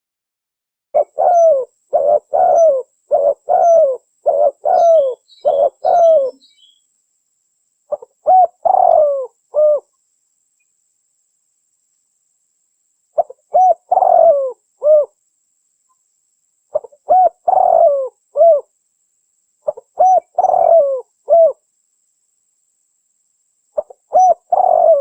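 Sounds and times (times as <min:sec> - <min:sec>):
dove cooing: 0:01.0 - 0:06.7, 0:07.9 - 0:09.9, 0:13.2 - 0:15.2, 0:16.7 - 0:18.7, 0:19.6 - 0:21.6, 0:23.8 - 0:25.0.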